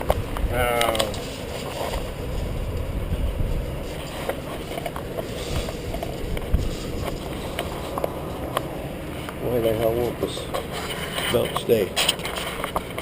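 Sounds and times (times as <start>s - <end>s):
low rumbling rainstorm: 0.0s - 9.2s.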